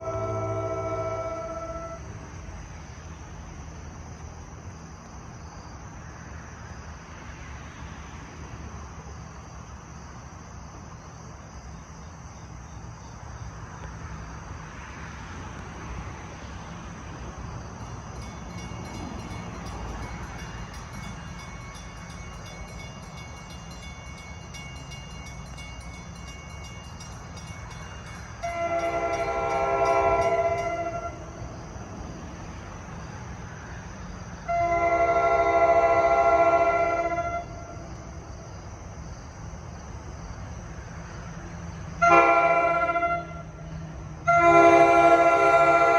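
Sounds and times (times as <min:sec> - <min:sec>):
locomotive horn blast: 0:00.0 - 0:02.1, 0:28.4 - 0:31.4, 0:34.4 - 0:37.8, 0:42.0 - 0:43.6, 0:44.2 - 0:45.9
train rumble: 0:00.0 - 0:45.9
crossing bell ringing: 0:17.7 - 0:31.5.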